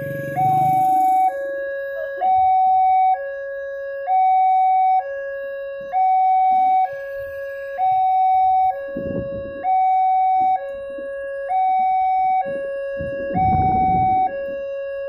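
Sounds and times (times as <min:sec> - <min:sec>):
level crossing two-tone alarm: 0:00.0 - 0:15.0.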